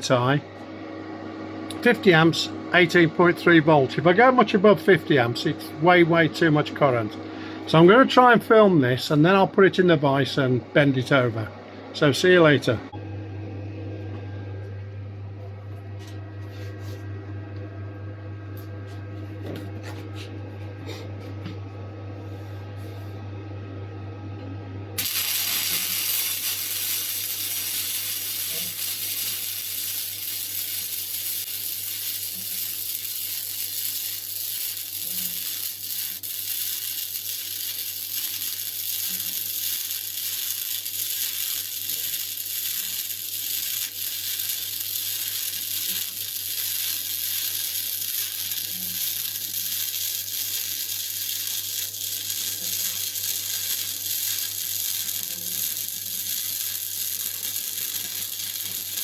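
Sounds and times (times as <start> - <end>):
low electrical hum: 0.0 - 59.0
welding arc sizzling hiss: 25.0 - 59.0.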